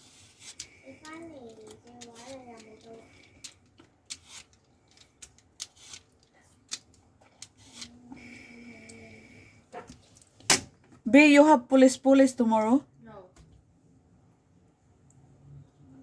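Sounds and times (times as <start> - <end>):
handling clicks and scrapes: 0.0 - 8.2.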